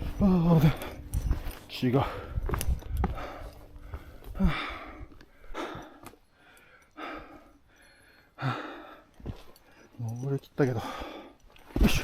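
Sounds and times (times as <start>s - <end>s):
person breathing hard: 2.0s - 10.0s, 10.8s - 11.7s.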